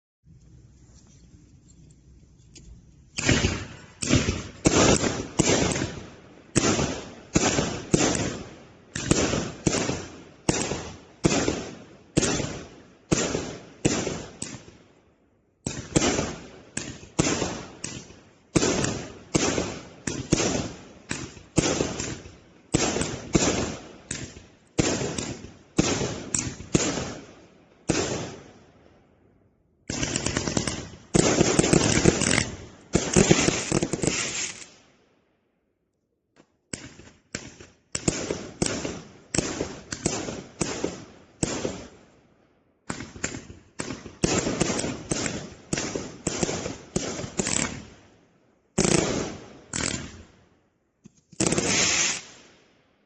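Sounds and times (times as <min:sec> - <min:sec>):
firework cake firing shots: 0:03.2 - 0:14.8, 0:15.6 - 0:28.6, 0:29.9 - 0:34.8, 0:36.7 - 0:42.0, 0:42.8 - 0:47.9, 0:48.8 - 0:50.2, 0:51.4 - 0:52.5.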